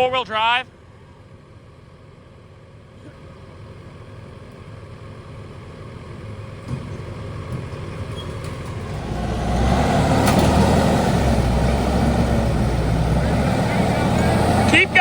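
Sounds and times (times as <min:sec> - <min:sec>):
heavy machinery engine running: 0:03.4 - 0:15.0.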